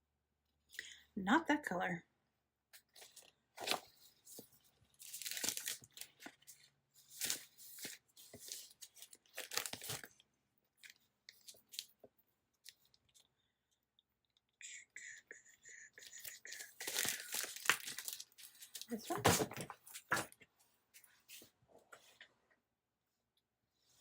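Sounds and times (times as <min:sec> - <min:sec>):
paper sheets rustling: 0:02.9 - 0:10.1, 0:16.2 - 0:20.3.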